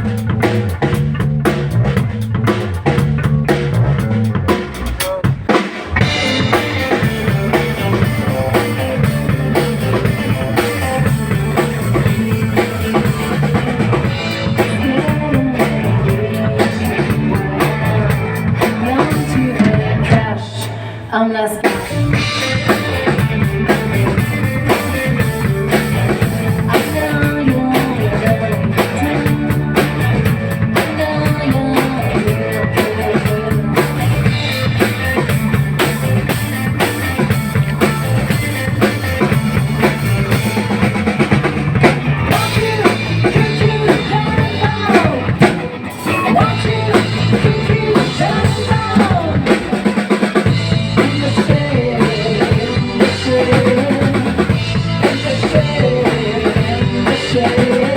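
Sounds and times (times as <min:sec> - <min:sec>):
bass drum: 0:00.0 - 0:20.4, 0:21.8 - 0:49.8, 0:50.5 - 0:57.9
rock band playing: 0:00.0 - 0:20.9, 0:21.5 - 0:57.9
drum rim shots: 0:00.3 - 0:19.7, 0:31.8 - 0:51.2.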